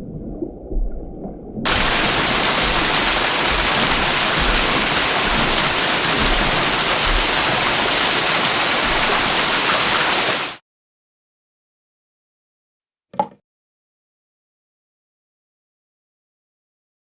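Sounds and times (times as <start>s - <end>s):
rushing water: 0.0s - 10.6s.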